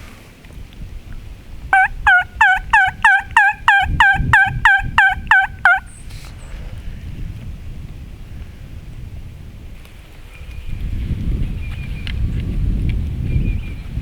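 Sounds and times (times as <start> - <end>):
wild turkey yelping: 1.8 - 6.0.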